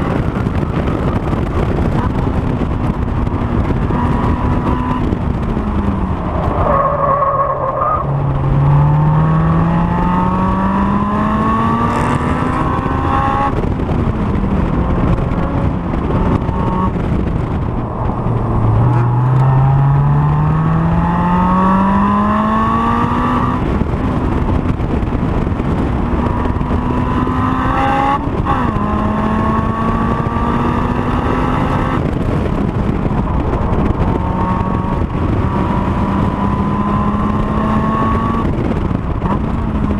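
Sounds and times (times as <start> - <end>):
wind and road noise: 0.0 - 39.9
car engine revving hard: 5.9 - 13.6, 18.5 - 23.8, 25.9 - 32.5, 33.9 - 38.6.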